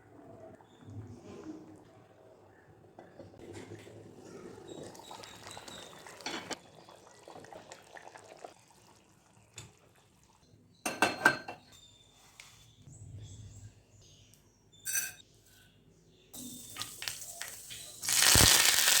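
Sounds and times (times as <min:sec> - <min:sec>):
metal pots and utensils clattering: 0:03.0 - 0:06.6, 0:10.8 - 0:11.8, 0:14.8 - 0:15.6.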